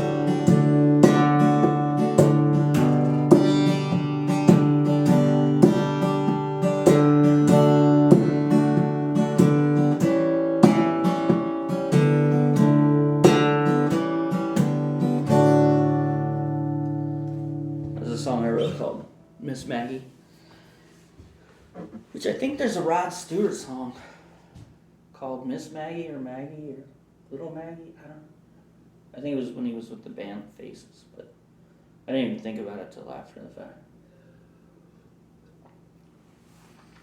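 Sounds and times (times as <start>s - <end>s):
acoustic guitar strumming: 0.0s - 20.6s.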